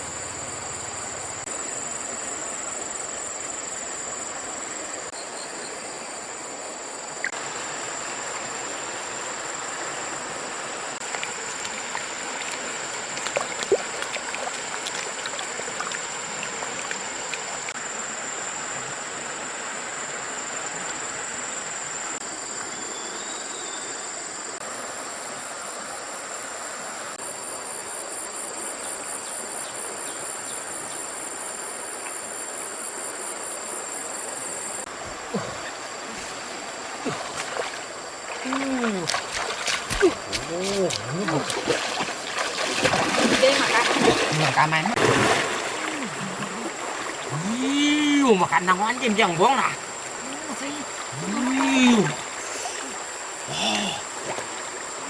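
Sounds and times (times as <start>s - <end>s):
muddy water rushing: 6.2s - 21.4s, 34.9s - 55.0s.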